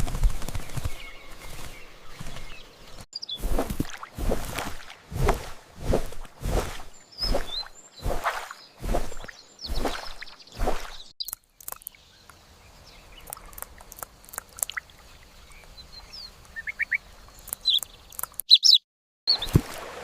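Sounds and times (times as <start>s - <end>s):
small bird chirping: 0.0s - 4.1s, 6.4s - 19.5s
swish: 3.4s - 11.0s.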